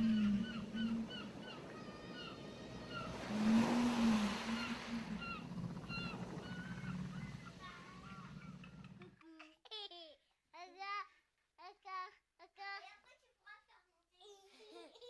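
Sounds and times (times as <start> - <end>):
ocean wave washing in: 0.0 - 9.0
birds chirping: 0.0 - 9.1
low arching moans: 0.0 - 9.1.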